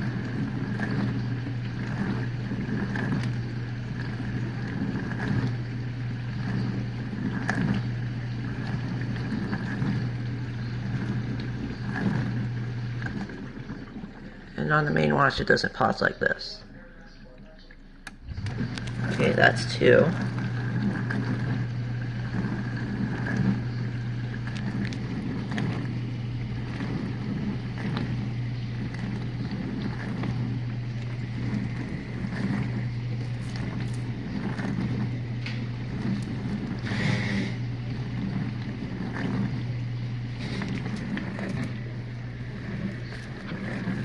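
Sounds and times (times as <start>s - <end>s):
dishwasher pump humming: 0.0s - 44.0s
water spraying and sloshing: 17.3s - 44.0s.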